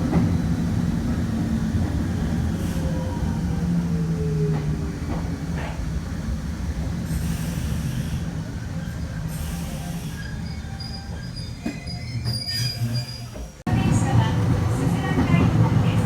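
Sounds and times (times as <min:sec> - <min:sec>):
train whine: 0:12.9 - 0:16.0
electric train humming: 0:13.7 - 0:16.0.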